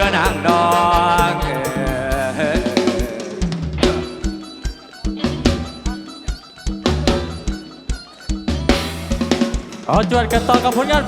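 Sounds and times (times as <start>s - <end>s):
bass line: 0.0s - 4.5s, 5.2s - 5.9s, 6.8s - 7.7s, 8.4s - 11.0s
drum kit beat: 0.0s - 11.0s.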